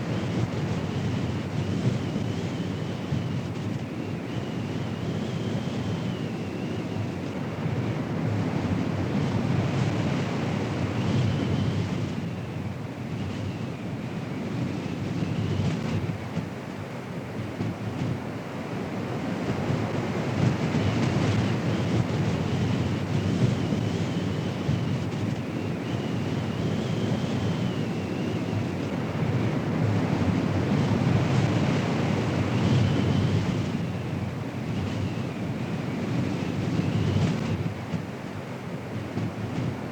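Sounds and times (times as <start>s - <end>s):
strong wind on microphone: 17.3s - 39.9s.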